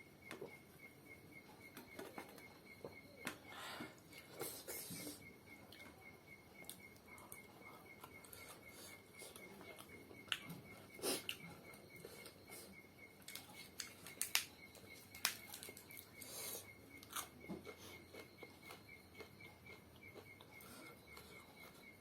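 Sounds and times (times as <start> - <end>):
chewing sounds: 6.6 - 22.0.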